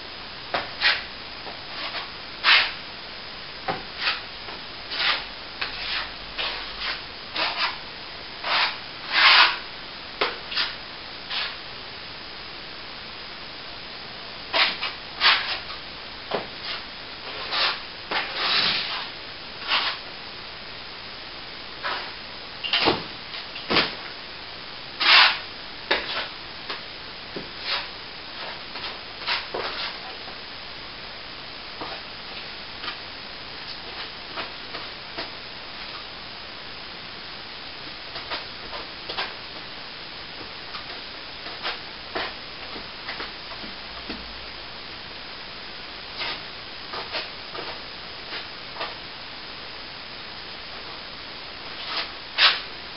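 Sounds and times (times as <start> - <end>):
steady hiss: 0.0 - 52.9
plastering tool scrapes and clicks: 0.6 - 1.1, 1.7 - 2.8, 4.0 - 4.2, 4.9 - 7.8, 8.4 - 9.6, 10.2 - 11.6, 14.5 - 15.7, 16.6 - 20.0, 25.0 - 26.3, 51.8 - 52.7.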